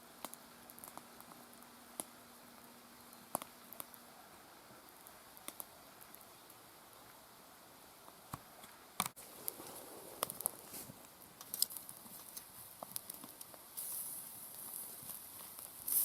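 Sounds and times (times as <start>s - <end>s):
campfire crackles and clicks: 0.0s - 16.0s
meat sizzling: 9.1s - 16.0s.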